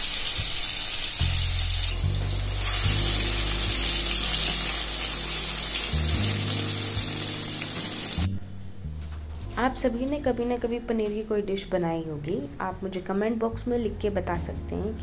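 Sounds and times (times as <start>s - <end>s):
food sizzling in hot oil: 0.0s - 8.3s
soft background music: 0.0s - 15.0s.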